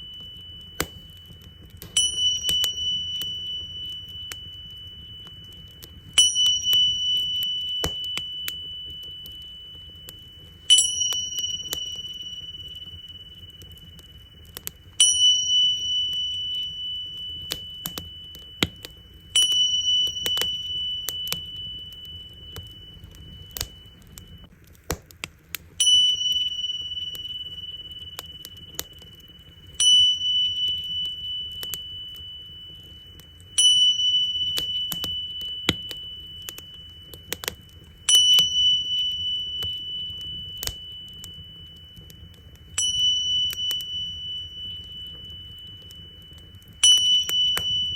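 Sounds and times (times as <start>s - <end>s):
tingsha cymbals ringing: 0.0s - 24.5s, 25.8s - 47.9s
bonfire crackling: 0.0s - 47.9s.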